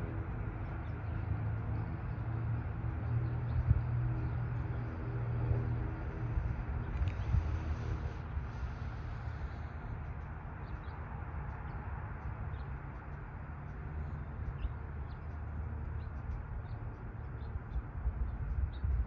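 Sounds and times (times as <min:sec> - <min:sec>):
low rumble: 0:00.0 - 0:11.1
small birds chirping: 0:00.3 - 0:19.0.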